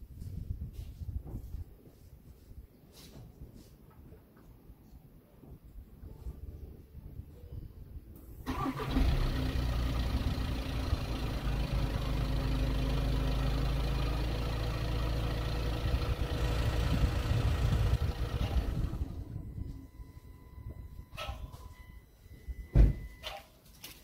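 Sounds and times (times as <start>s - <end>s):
car engine starting and idling: 8.2s - 20.9s.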